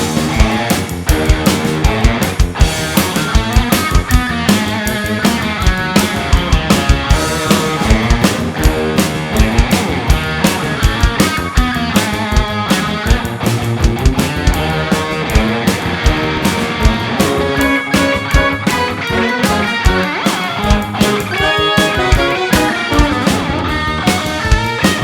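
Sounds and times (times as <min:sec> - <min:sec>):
drums steady beat: 0:00.0 - 0:25.0
electric guitar: 0:00.0 - 0:25.0
rock band playing live: 0:00.0 - 0:25.0.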